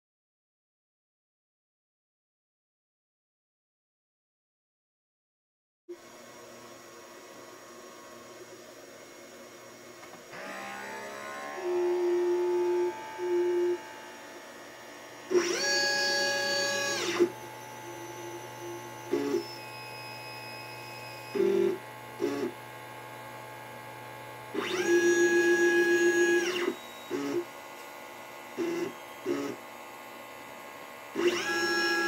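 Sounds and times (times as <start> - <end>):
stepper motors whining: 10.1 - 22.6, 24.6 - 27.5, 31.2 - 32.0
short motor buzzes: 10.2 - 22.8, 23.4 - 27.6, 28.5 - 29.7, 31.1 - 32.0.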